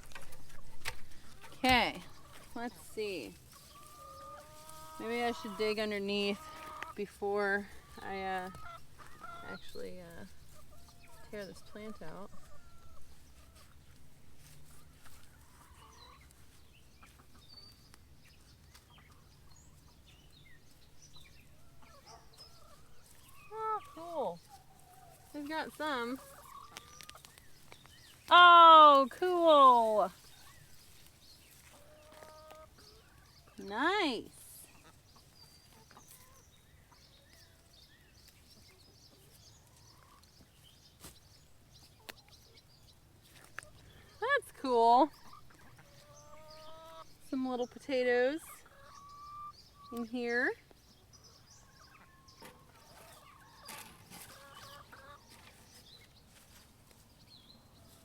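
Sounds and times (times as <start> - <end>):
small birds chirping: 0.0 - 58.0
chicken calling softly: 3.5 - 7.0.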